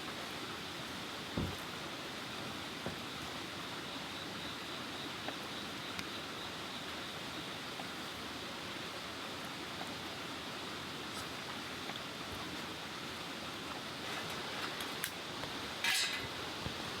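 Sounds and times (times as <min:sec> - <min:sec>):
low thump: 0:01.4 - 0:01.6.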